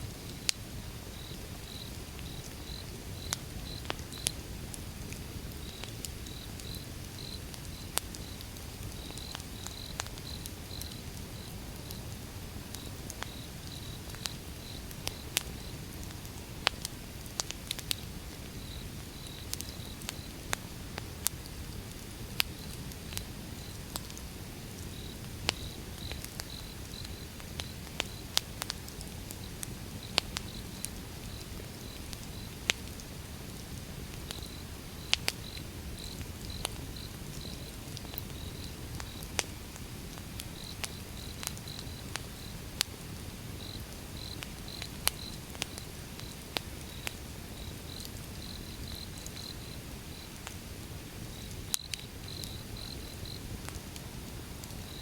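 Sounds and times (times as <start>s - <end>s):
wood fire crackling: 0.1s - 55.0s
insect chirping: 1.1s - 4.4s, 5.6s - 12.0s, 18.6s - 20.3s, 24.9s - 28.3s, 34.3s - 39.2s, 40.6s - 42.6s, 43.6s - 50.3s, 51.3s - 53.4s.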